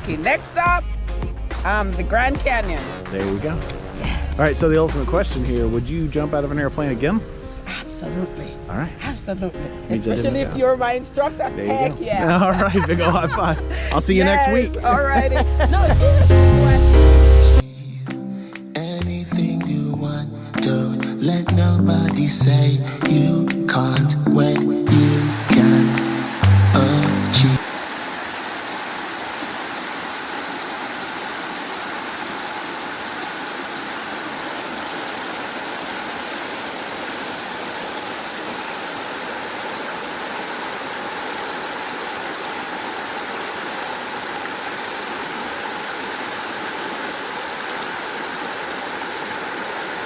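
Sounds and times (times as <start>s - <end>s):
steady rushing noise: 24.9s - 27.7s.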